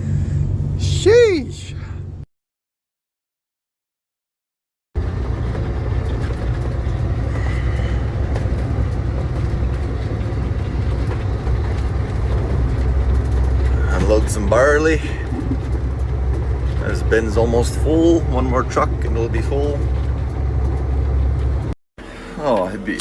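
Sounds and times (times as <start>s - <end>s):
large engine rumbling: 0.0s - 2.3s, 5.0s - 23.0s.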